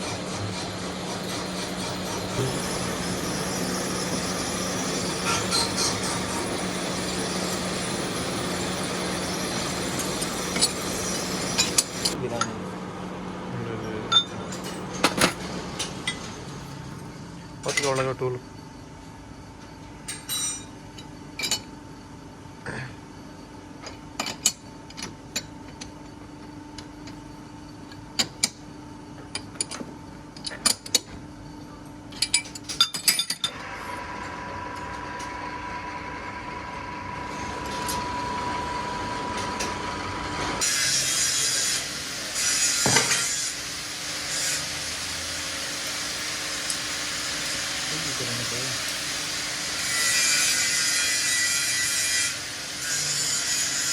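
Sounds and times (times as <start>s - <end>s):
machine hum: 0.0s - 17.7s, 33.4s - 41.8s
metal-cutting machine whine: 0.0s - 18.5s, 32.4s - 53.9s
metal tools clinking: 2.0s - 12.6s.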